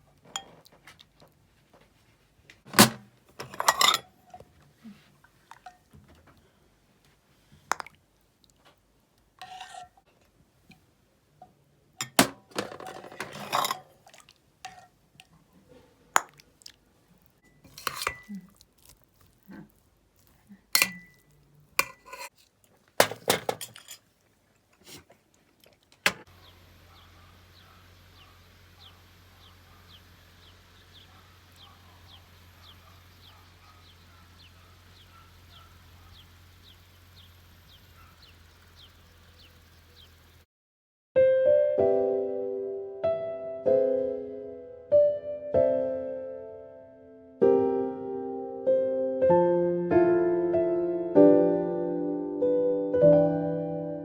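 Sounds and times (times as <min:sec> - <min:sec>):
rustling and scraping: 0:00.2 - 0:06.3, 0:12.3 - 0:14.0, 0:17.5 - 0:26.4
dishes and pots clinking: 0:02.7 - 0:04.5, 0:12.0 - 0:15.3, 0:17.5 - 0:18.3, 0:20.8 - 0:22.4, 0:23.0 - 0:24.0.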